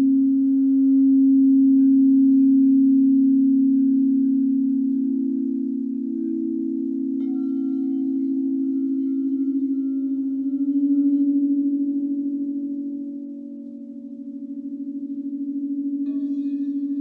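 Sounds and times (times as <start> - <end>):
singing bowl high bell-like tones: 0.0 - 17.0
singing bowls ringing low: 0.0 - 17.0.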